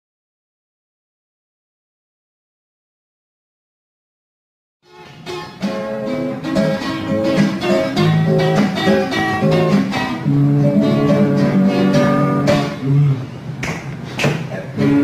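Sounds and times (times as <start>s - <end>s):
acoustic guitar melody: 4.9s - 13.4s, 14.5s - 15.0s.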